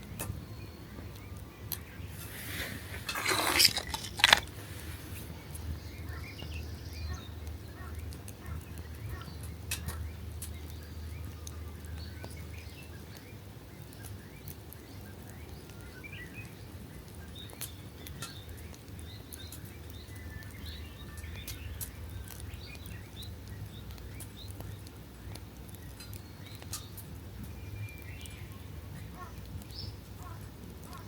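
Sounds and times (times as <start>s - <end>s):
faint birds chirping: 0.2s - 31.0s
rustling scrape: 2.1s - 5.4s.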